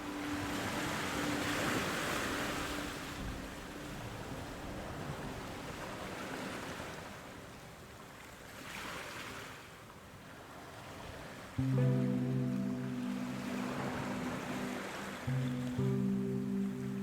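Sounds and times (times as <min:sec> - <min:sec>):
music with loud notes: 0:11.6 - 0:17.0.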